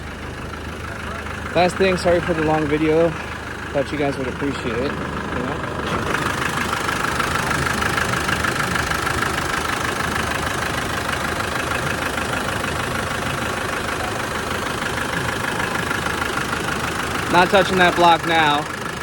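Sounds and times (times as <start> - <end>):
pickup engine idling: 0.0 - 19.0.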